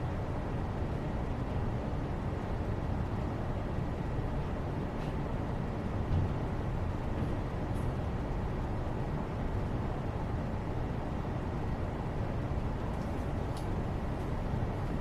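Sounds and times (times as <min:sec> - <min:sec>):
low rumbling room noise: 0:00.0 - 0:15.0.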